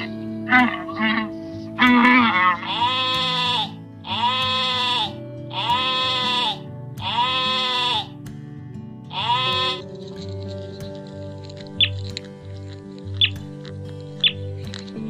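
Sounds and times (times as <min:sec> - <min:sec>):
sheep bleating: 0:00.0 - 0:08.2, 0:09.1 - 0:09.9
background music: 0:00.0 - 0:15.0.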